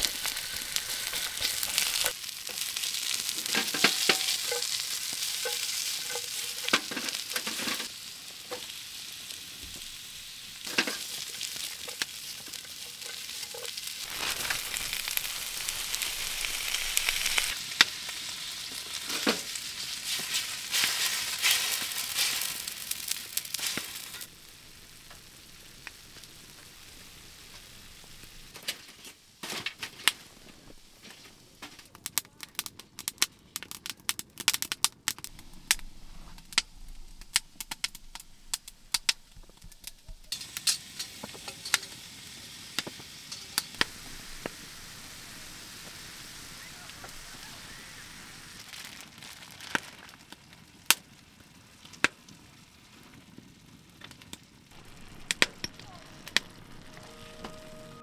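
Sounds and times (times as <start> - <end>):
utensils clicking against pan: 0.0 - 2.6, 3.3 - 7.9, 39.0 - 42.0, 43.3 - 43.9
vegetables sizzling in pan: 0.0 - 31.9, 35.3 - 58.0.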